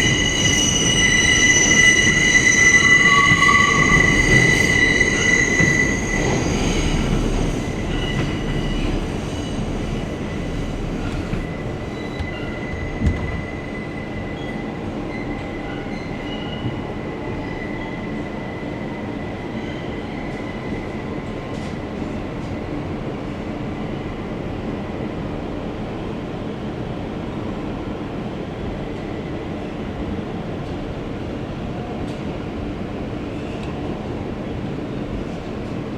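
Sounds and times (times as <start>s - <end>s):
high-pitched wheel squeal: 0.0s - 9.7s
steel wheels rumbling on rail: 0.0s - 35.9s.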